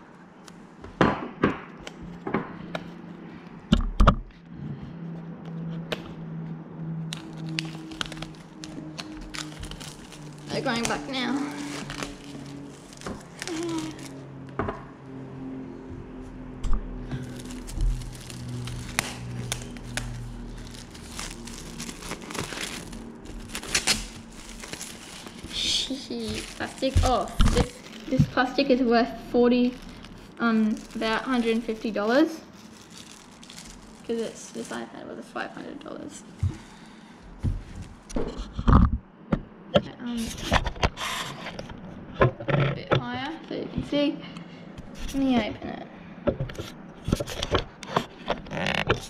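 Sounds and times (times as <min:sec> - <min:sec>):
low steady hum: 0:00.0 - 0:49.0
plastic wrap ripping: 0:07.1 - 0:14.3, 0:17.1 - 0:28.9, 0:29.6 - 0:34.8.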